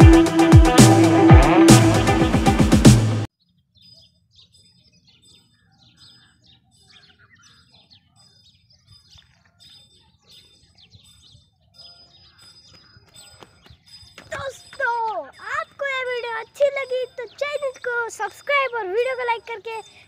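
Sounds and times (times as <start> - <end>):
electronic background music: 0.0 - 3.3
faint bird chirps: 3.4 - 20.0.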